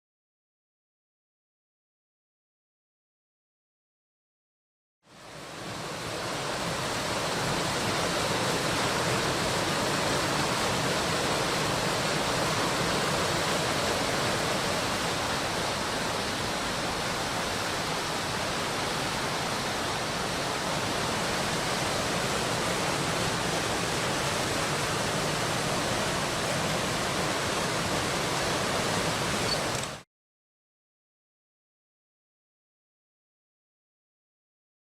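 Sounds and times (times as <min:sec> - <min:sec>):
stream rushing over rocks: 0:05.1 - 0:30.0.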